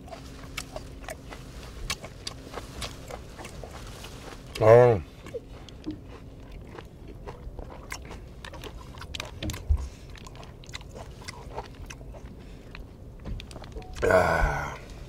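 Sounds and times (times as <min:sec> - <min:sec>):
wet chewing mouth sounds: 0:00.0 - 0:15.0.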